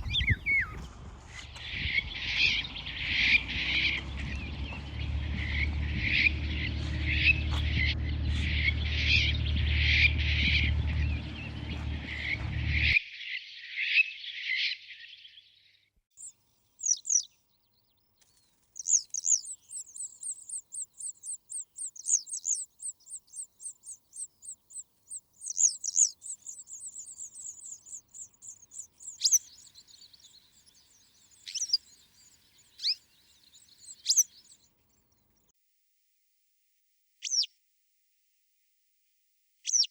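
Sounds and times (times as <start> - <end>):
birds singing and chirping: 0.0 - 13.0, 16.2 - 35.0, 37.2 - 37.5, 39.6 - 39.9
low steady hum: 0.0 - 13.0.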